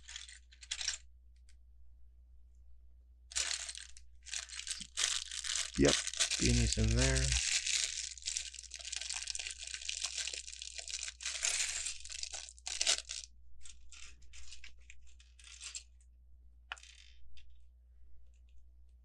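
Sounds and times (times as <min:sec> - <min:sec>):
plastic bag crinkling: 0:03.3 - 0:15.8.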